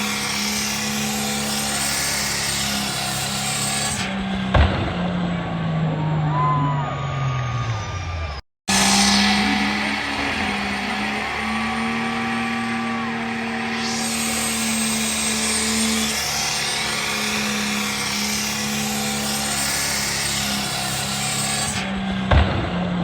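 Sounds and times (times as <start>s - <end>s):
truck engine revving high: 0.0s - 23.0s
loud broad hiss: 8.7s - 22.1s.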